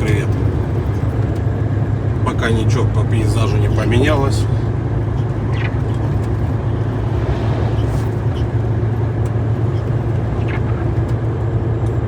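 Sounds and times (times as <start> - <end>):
truck diesel engine drone: 0.0 - 12.0.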